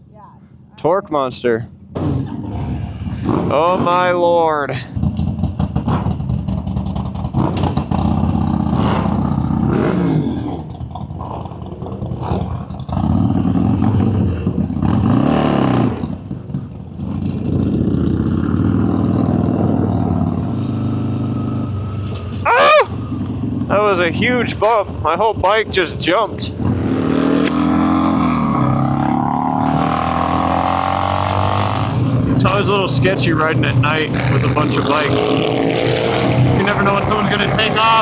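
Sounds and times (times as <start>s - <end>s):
wind and road noise: 0.0s - 38.0s
motorcycle hitting a bump: 1.9s - 3.9s, 5.0s - 9.7s
motorcycle engine revving: 1.9s - 38.0s.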